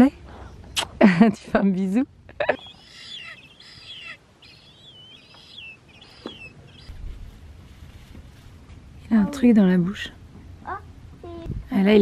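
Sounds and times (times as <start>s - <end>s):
birds calling: 2.2s - 7.4s.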